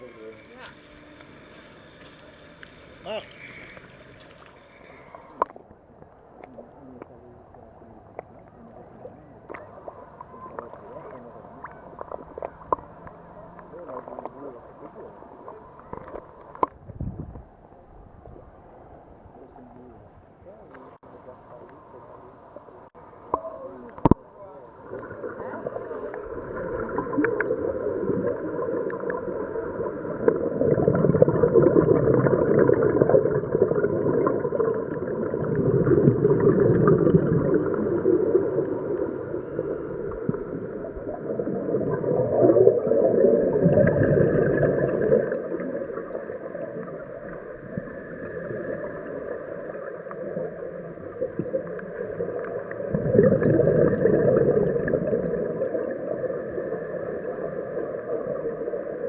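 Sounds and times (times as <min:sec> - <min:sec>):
diver breathing through regulator: 0:00.9 - 0:05.4, 0:36.9 - 0:39.9, 0:47.6 - 0:49.5, 0:56.2 - 0:58.2
exhaled bubbles gurgling: 0:08.0 - 0:16.6, 0:24.0 - 0:59.0.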